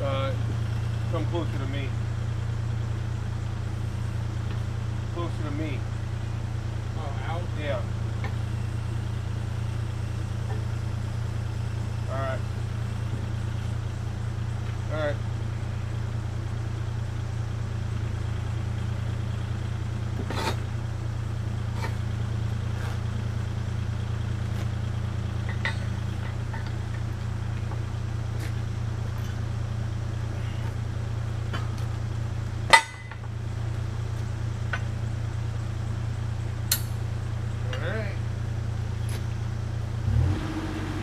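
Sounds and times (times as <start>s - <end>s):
diesel engine idling: 0.0s - 41.0s
sharp metal clank: 32.7s - 33.3s, 36.7s - 37.0s.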